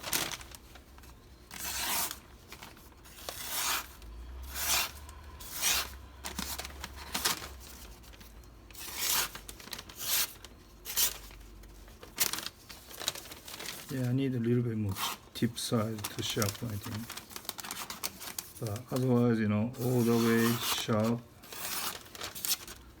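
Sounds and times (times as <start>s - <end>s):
knife slicing paper: 1.5s - 2.2s, 3.0s - 7.3s, 8.8s - 11.2s, 19.8s - 22.8s.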